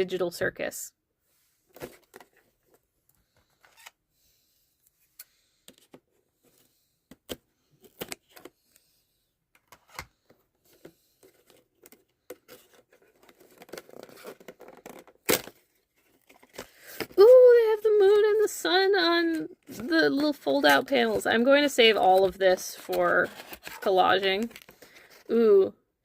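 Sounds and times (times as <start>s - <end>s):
cardboard rustling and tearing: 11.3s - 18.5s, 19.1s - 25.4s.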